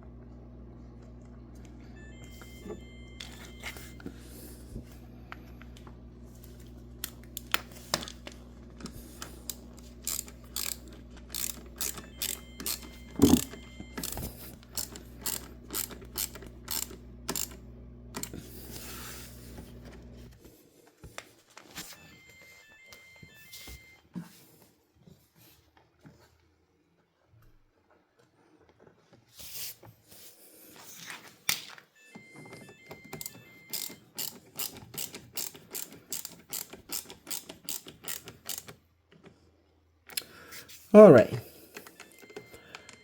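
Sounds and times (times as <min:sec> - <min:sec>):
ratcheting screwdriver clicking: 0:09.5 - 0:17.6, 0:33.2 - 0:38.8
faint error beeps: 0:12.1 - 0:13.7.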